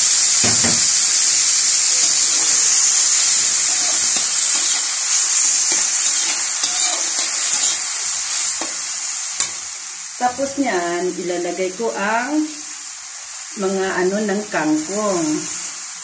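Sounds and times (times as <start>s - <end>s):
vegetables sizzling in a wok: 0.0s - 16.0s
metal spatula scraping: 2.0s - 8.8s.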